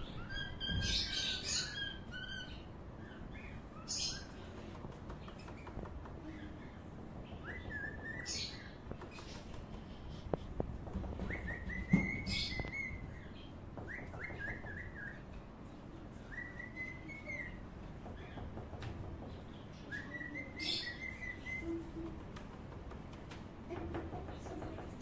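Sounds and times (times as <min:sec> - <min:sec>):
bird whistling calls: 0:19.9 - 0:21.8.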